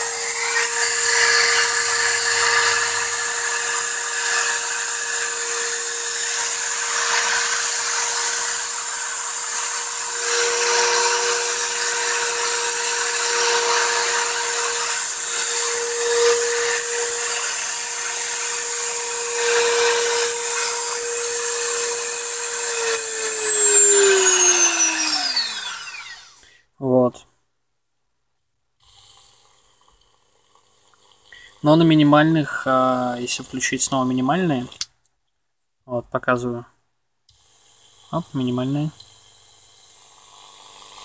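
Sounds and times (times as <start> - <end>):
motor spinning down: 0.0 - 26.4
rotary tool high-pitched whistle: 0.0 - 26.4.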